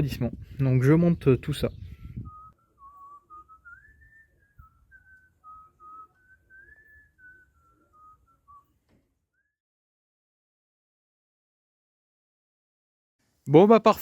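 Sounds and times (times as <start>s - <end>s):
man whistling a tune: 1.8s - 9.6s.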